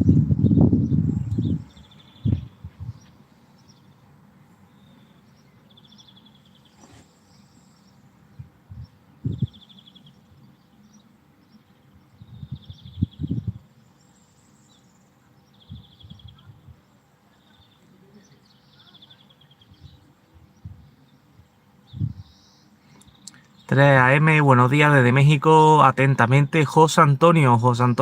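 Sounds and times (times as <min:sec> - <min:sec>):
wind buffeting microphone: 0:00.0 - 0:03.2, 0:08.3 - 0:09.7, 0:12.1 - 0:13.7, 0:15.6 - 0:16.8, 0:19.7 - 0:22.4
faint field background: 0:00.0 - 0:28.0.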